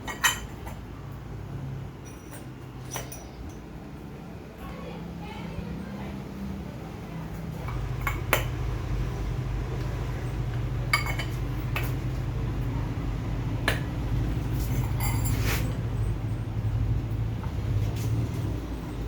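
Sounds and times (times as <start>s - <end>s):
steady low hum: 0.0s - 19.0s
small metal parts clinking: 2.0s - 3.7s.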